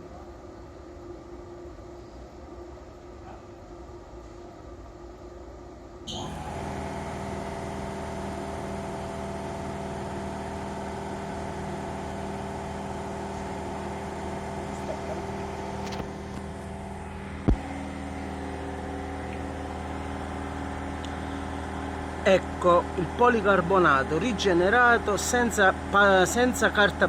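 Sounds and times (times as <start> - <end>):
machine humming: 6.0 - 27.0.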